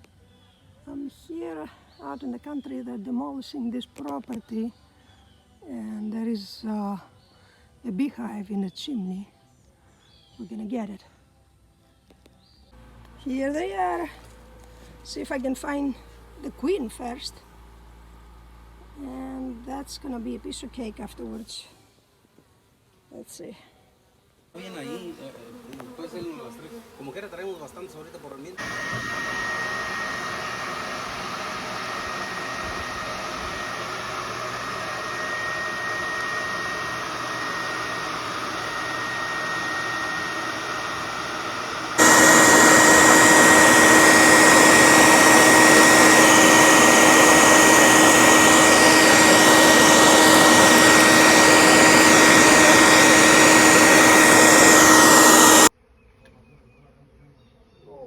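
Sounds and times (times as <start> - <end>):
honeybees buzzing: 24.6 - 55.7.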